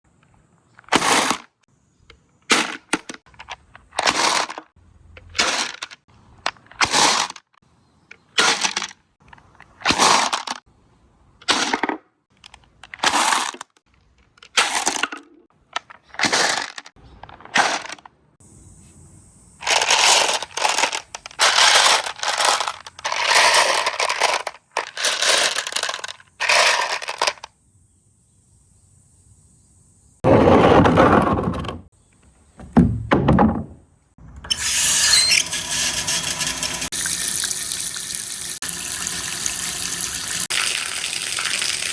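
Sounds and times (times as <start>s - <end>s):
marbles clattering down a track: 19.7s - 27.5s.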